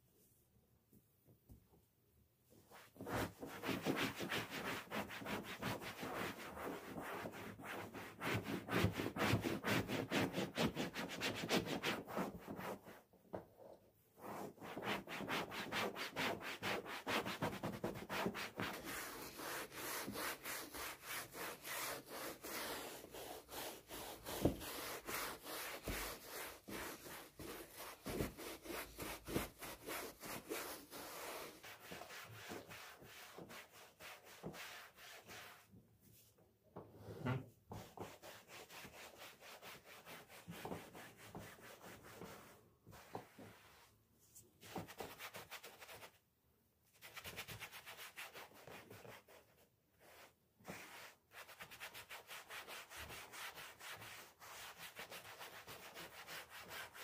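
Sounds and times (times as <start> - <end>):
hand scrubbing strokes: 16.4 - 35.6.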